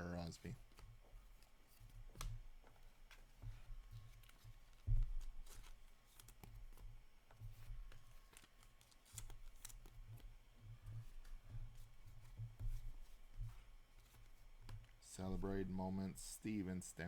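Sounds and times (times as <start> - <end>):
cards sliding and clicking: 5.4 - 6.8, 7.9 - 9.9.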